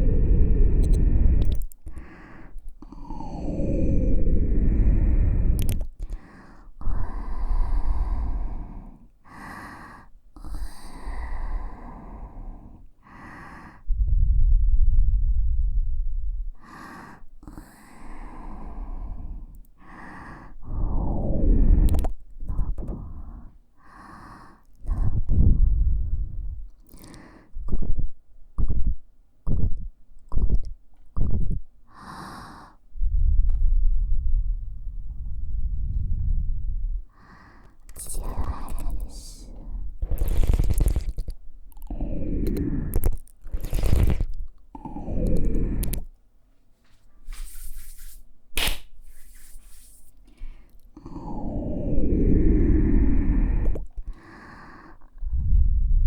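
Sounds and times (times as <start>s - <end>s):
air rumble on microphone: 0.0s - 1.7s, 3.2s - 6.0s, 13.9s - 16.6s, 20.6s - 23.6s, 24.9s - 26.7s, 32.9s - 37.2s, 38.0s - 46.1s, 51.2s - 54.1s, 55.2s - 56.0s
breath puffs on microphone: 0.0s - 2.6s, 18.6s - 27.6s, 31.4s - 44.4s, 47.2s - 48.3s
airy exhale: 0.0s - 14.5s, 16.6s - 27.5s, 37.1s - 46.1s, 49.1s - 56.0s
wind rumble on microphone: 13.9s - 16.6s, 24.9s - 26.7s, 33.0s - 37.1s, 55.2s - 56.0s.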